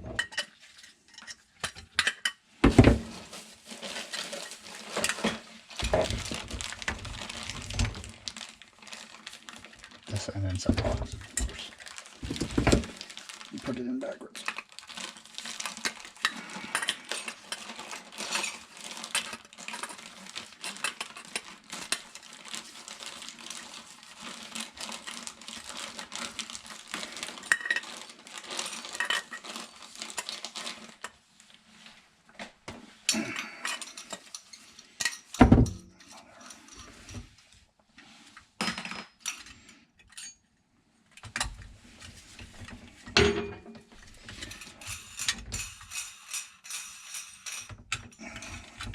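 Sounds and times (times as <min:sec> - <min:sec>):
metal tools clinking and rattling: 0:33.4 - 0:37.1, 0:43.2 - 0:48.9.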